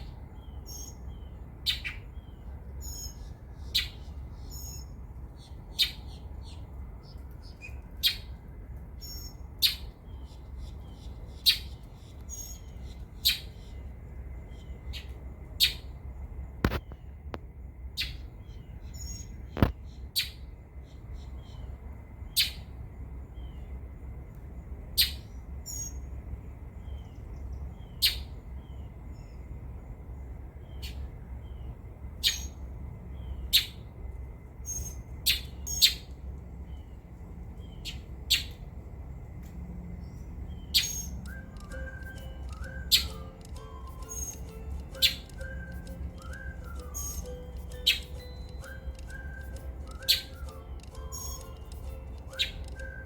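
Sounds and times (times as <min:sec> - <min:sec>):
steady low rumble: 0:00.0 - 0:53.0
young bird high chirps: 0:00.4 - 0:06.6, 0:40.6 - 0:53.0
songbird sharp calls: 0:40.5 - 0:53.0.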